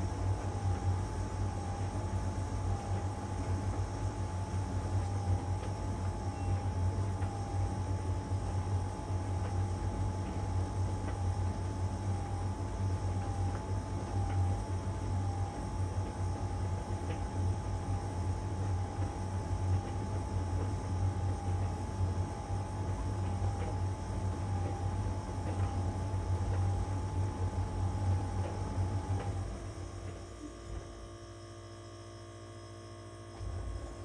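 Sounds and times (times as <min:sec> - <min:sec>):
clothes dryer humming: 0:00.0 - 0:31.0
faint wavering whine: 0:00.0 - 0:34.0.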